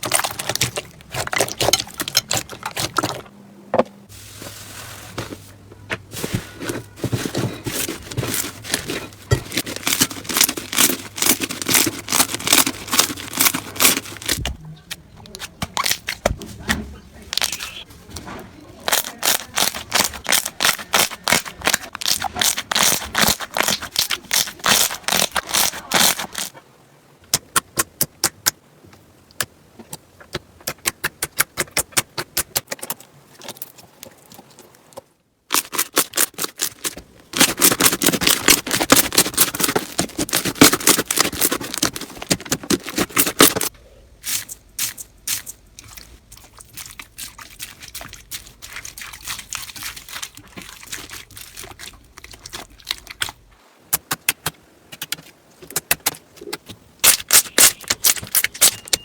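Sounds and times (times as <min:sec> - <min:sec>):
slime crackling and popping: 0:08.6 - 0:14.5, 0:18.8 - 0:26.5, 0:35.5 - 0:46.1, 0:55.8 - 0:59.0.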